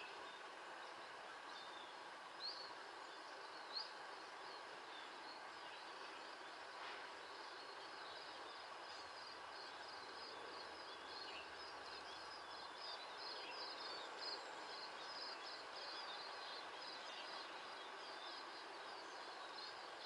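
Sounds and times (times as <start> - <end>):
faint outdoor hum: 0.0 - 20.0.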